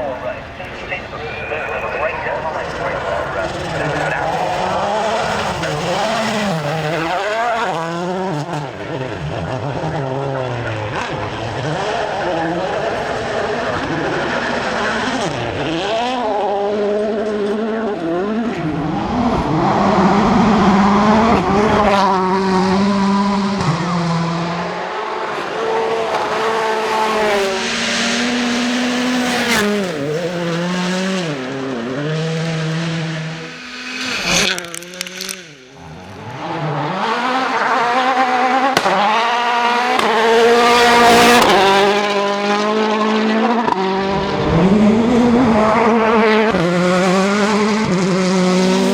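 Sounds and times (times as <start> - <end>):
rally car engines revving: 0.0 - 48.9
sharp cracks: 38.6 - 41.8.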